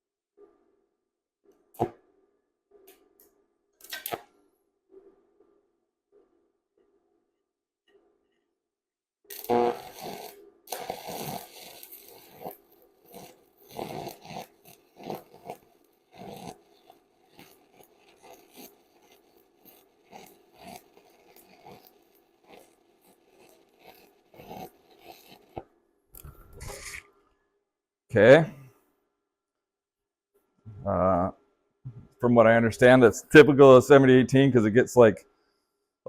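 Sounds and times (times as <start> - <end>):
welding arc crackling: 9.3 - 25.6.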